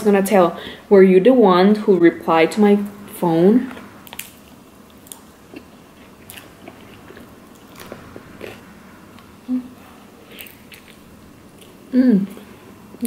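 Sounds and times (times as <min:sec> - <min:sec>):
person chewing crunchy food: 0:03.7 - 0:12.6
person humming: 0:09.4 - 0:09.9, 0:11.9 - 0:12.4.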